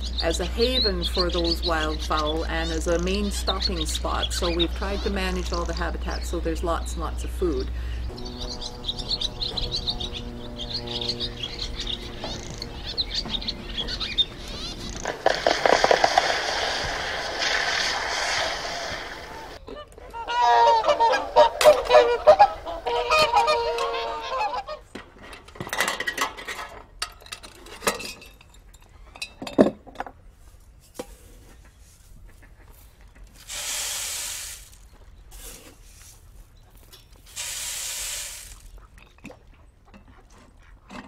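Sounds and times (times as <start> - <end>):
geese honking: 0.0 - 24.9
rushes of noise: 14.9 - 19.6.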